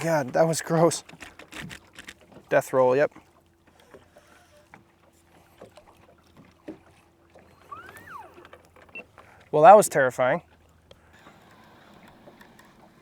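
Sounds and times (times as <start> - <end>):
rising and falling whistle: 7.6 - 8.4.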